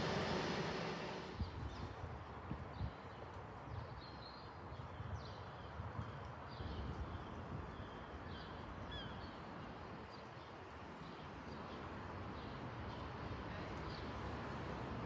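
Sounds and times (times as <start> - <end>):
low steady rumble: 0.0 - 1.4.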